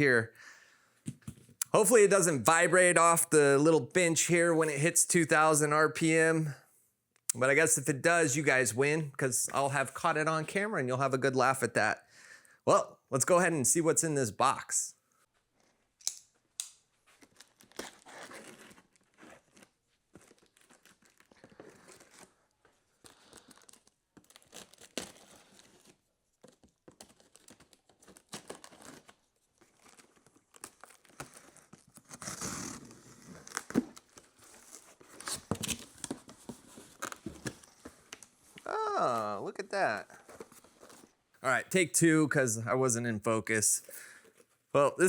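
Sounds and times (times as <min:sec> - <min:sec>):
cardboard tearing and rustling: 0:17.2 - 0:38.2.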